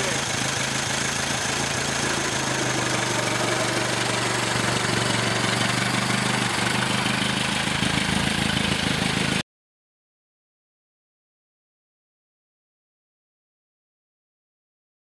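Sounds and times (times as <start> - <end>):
car engine running: 0.0 - 9.4.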